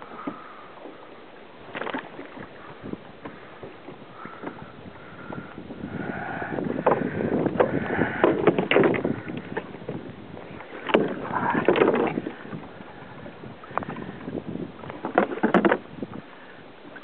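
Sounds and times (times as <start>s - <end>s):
water splashing against kayak: 0.0s - 17.0s.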